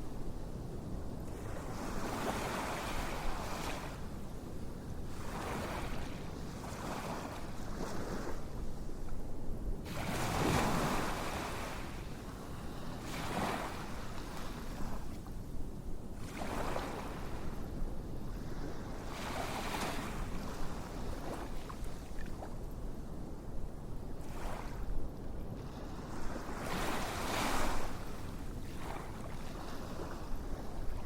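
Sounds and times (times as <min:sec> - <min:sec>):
ocean waves breaking on shore: 0:01.3 - 0:04.0, 0:05.0 - 0:08.6, 0:09.8 - 0:15.2, 0:16.2 - 0:22.2, 0:25.6 - 0:31.0.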